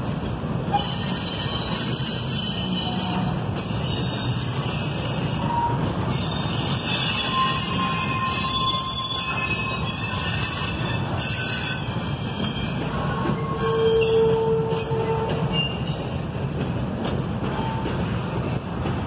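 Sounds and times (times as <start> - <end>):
freight train wheels rumbling: 0.0 - 19.0
high-pitched wheel squeals: 0.8 - 15.9.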